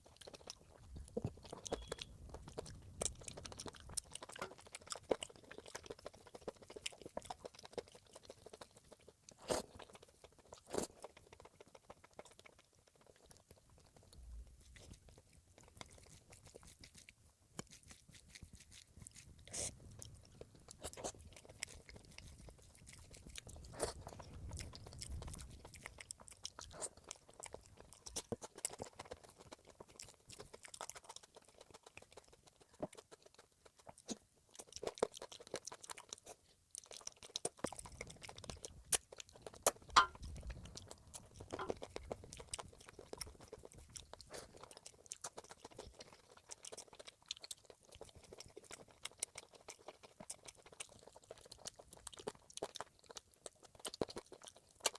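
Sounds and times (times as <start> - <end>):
person chewing with crunches: 0.0 - 54.9
mouth clicks: 1.0 - 4.5.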